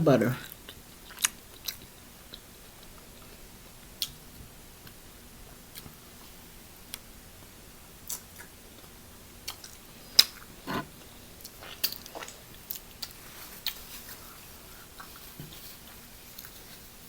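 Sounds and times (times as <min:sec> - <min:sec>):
chewing and mouth smacks: 0:00.5 - 0:03.3, 0:09.4 - 0:10.5, 0:11.4 - 0:14.3.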